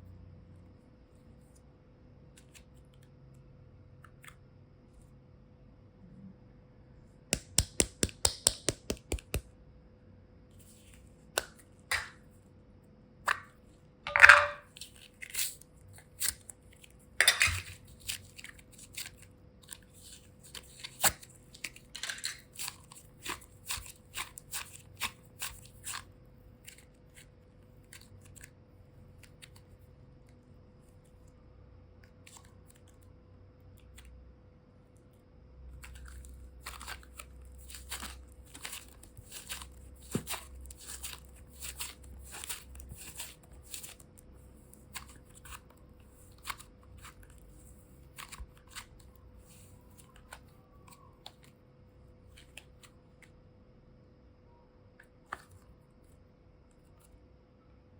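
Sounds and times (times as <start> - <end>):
slime clicking and crackling: 35.8 - 44.1.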